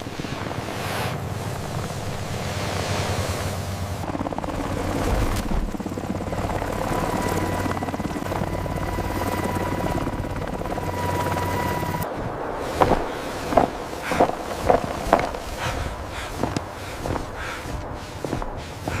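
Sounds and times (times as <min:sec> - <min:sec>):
pulsing motor drone: 0:00.4 - 0:12.1, 0:12.8 - 0:19.0
thin steady whine: 0:05.8 - 0:19.0.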